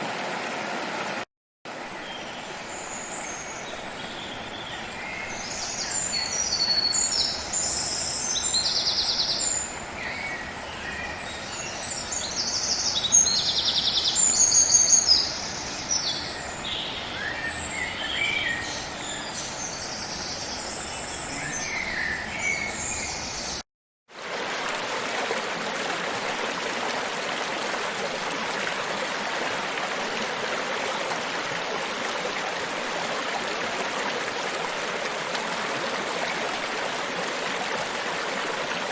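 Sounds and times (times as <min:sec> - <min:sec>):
stream rushing: 0:00.0 - 0:12.9, 0:24.1 - 0:38.9
birds chirping and trilling: 0:02.0 - 0:23.6.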